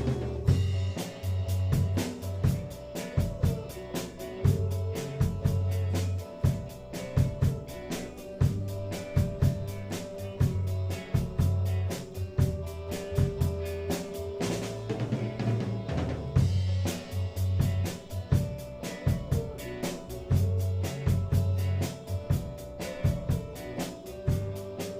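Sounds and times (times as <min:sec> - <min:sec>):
bass line: 0:00.0 - 0:24.9.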